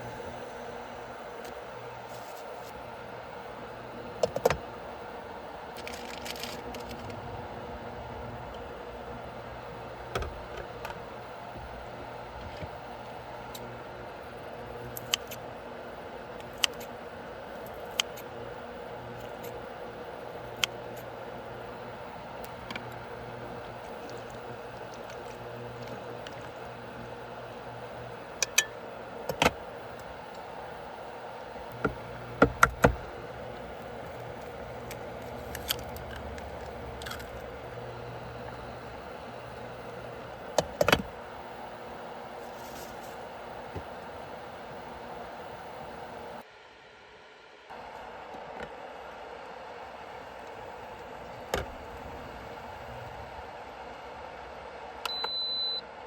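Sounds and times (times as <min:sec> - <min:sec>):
steady low hum: 0:00.0 - 0:56.0
campfire burning: 0:11.0 - 0:46.4.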